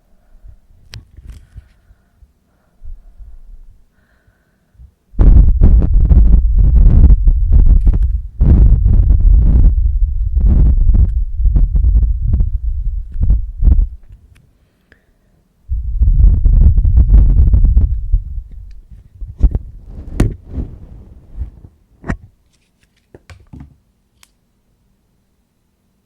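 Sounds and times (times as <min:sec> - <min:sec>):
muffled rubbing on microphone: 0:05.2 - 0:14.2, 0:15.7 - 0:21.8.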